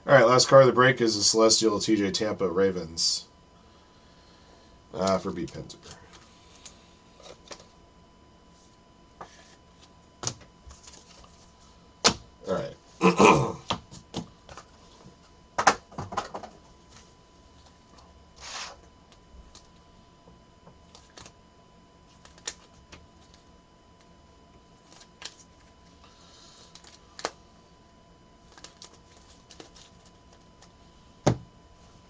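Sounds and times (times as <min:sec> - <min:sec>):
faint steady hum: 0:00.0 - 0:32.0
cards rustling: 0:10.7 - 0:11.6, 0:20.8 - 0:21.4, 0:22.1 - 0:23.5, 0:24.8 - 0:27.4, 0:28.4 - 0:30.8
cards clicking and tapping: 0:20.9 - 0:21.3, 0:22.2 - 0:23.4, 0:26.7 - 0:27.4, 0:28.5 - 0:30.7.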